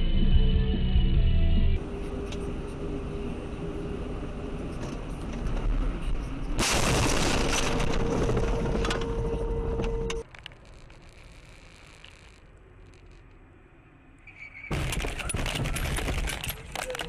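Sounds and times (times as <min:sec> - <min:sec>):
car road noise: 0:01.8 - 0:06.6.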